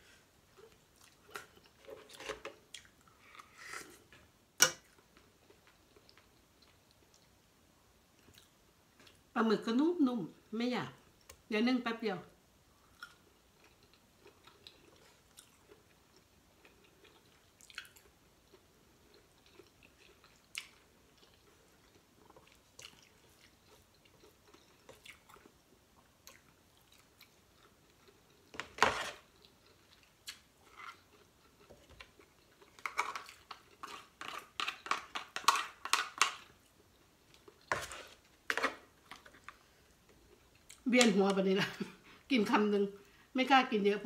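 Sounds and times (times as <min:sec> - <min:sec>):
chewing seafood: 0:12.8 - 0:40.8
spoon scraping crab shell: 0:37.7 - 0:39.3.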